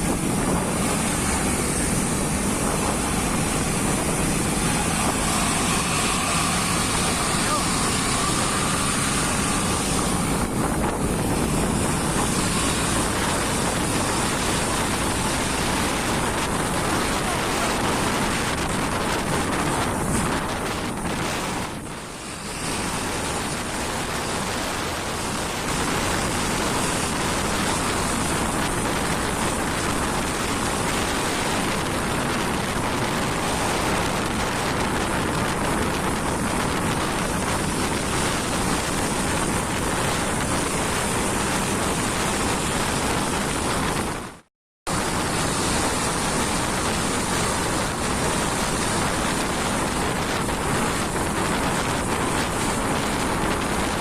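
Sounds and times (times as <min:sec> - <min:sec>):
truck tyres on wet road: 0:00.0 - 0:54.0.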